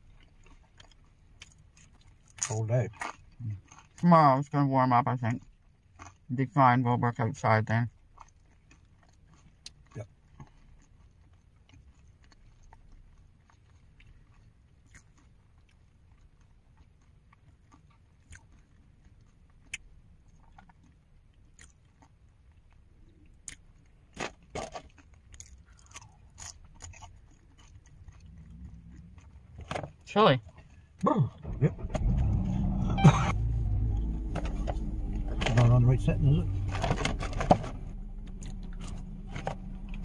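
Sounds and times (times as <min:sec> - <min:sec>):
person crunching fries: 0:00.0 - 0:04.0, 0:05.3 - 0:06.3, 0:07.9 - 0:31.0
low steady hum: 0:00.0 - 0:40.0.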